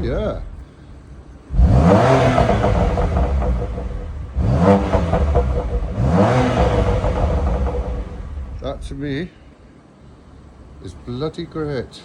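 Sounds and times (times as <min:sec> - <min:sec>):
car engine revving: 0:01.5 - 0:09.1.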